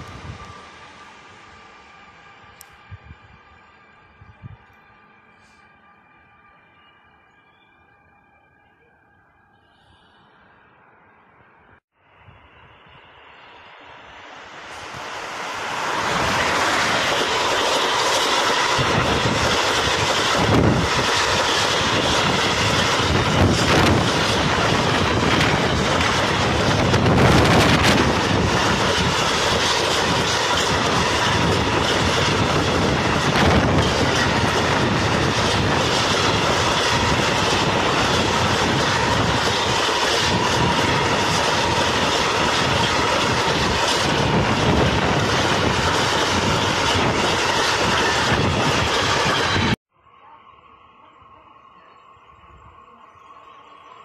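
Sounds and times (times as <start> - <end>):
clickety-clack over rail joints: 15.8 - 49.8.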